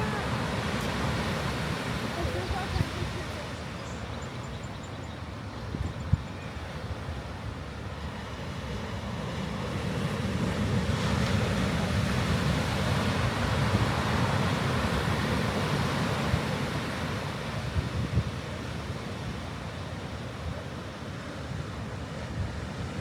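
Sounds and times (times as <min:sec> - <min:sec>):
ocean waves breaking: 0:00.0 - 0:04.2, 0:07.1 - 0:23.0
wind buffeting microphone: 0:00.0 - 0:04.7, 0:05.5 - 0:07.2, 0:09.5 - 0:19.5.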